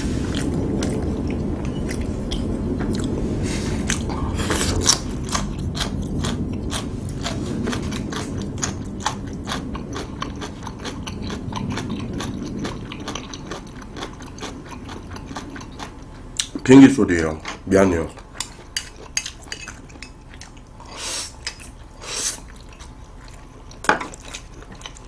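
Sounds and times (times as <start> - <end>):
airplane rumbling overhead: 0.0 - 25.0
chewing noodles close up: 3.8 - 16.6.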